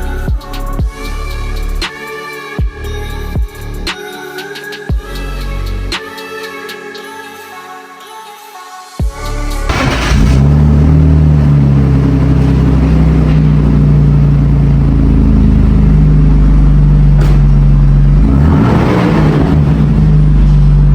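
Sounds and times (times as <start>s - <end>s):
loud car engine exhaust revving: 9.7s - 20.9s.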